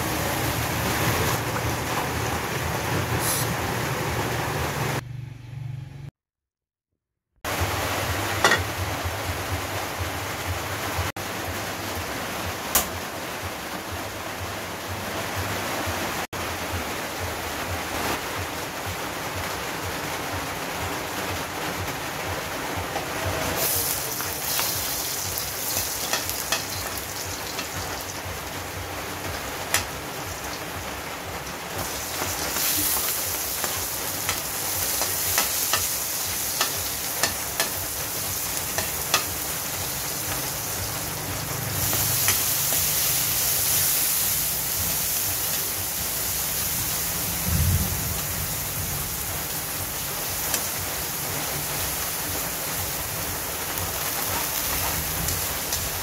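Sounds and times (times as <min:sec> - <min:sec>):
vegetables sizzling in oil: 0:00.0 - 0:05.0, 0:07.5 - 0:10.5, 0:23.4 - 0:56.0
metal utensils clinking against wok: 0:08.4 - 0:08.7.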